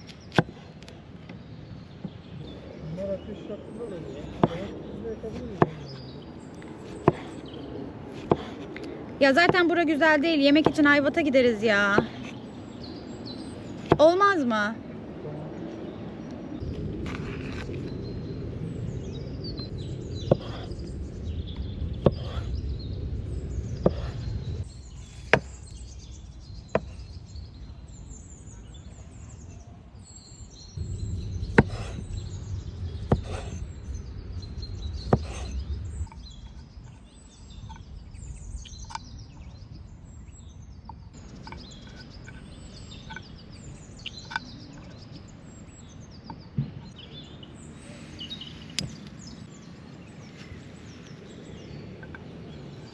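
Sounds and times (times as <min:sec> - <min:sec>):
small birds chirping: 0:00.0 - 0:52.9
low rumbling noise: 0:14.8 - 0:44.0
sharp knocks: 0:31.5 - 0:32.0, 0:33.0 - 0:33.6, 0:35.0 - 0:35.6.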